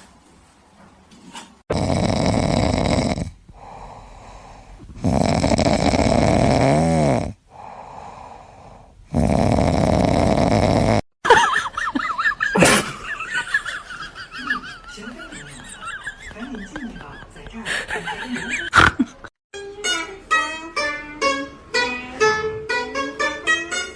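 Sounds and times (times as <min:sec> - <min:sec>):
pet snoring: 0:01.7 - 0:11.0.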